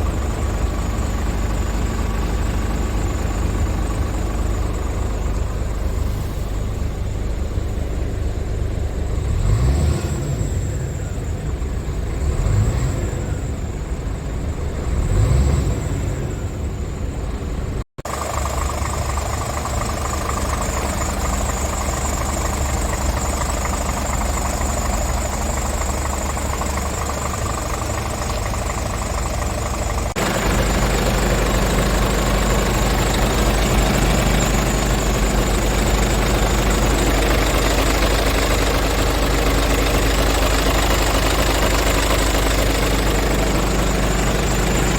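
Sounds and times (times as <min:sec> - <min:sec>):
diesel truck engine idling: 0:00.0 - 0:44.9
engine revving: 0:09.1 - 0:13.7, 0:14.8 - 0:16.7, 0:20.5 - 0:44.9.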